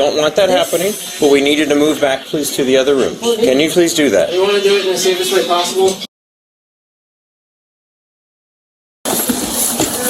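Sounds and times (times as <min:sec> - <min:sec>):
loud hissy noise: 0:00.0 - 0:03.4.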